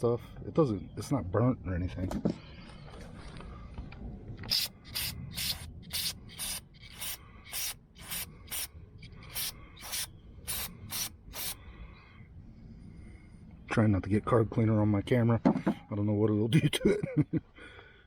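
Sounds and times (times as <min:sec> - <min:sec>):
short hissing spray strokes: 0:04.5 - 0:11.6.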